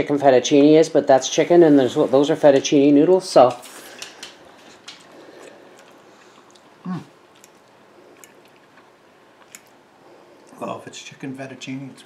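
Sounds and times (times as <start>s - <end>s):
man chewing: 3.7s - 10.6s.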